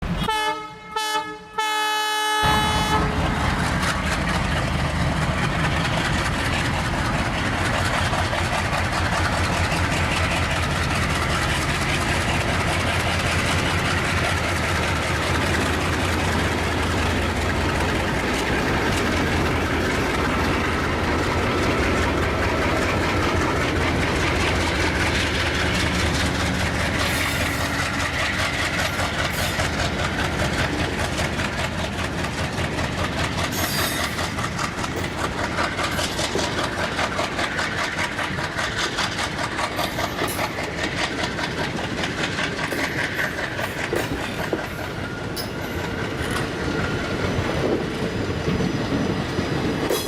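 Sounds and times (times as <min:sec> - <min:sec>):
locomotive horn blasts: 0:00.1 - 0:03.4.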